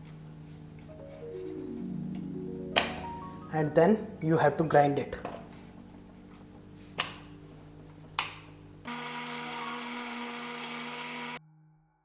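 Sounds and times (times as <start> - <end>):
mixer grinder motor whine: 8.9 - 11.4.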